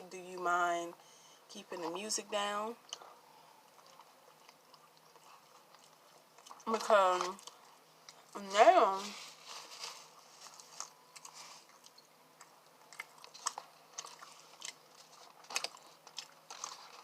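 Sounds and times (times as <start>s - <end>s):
person chewing food: 2.8s - 8.4s, 9.1s - 17.0s.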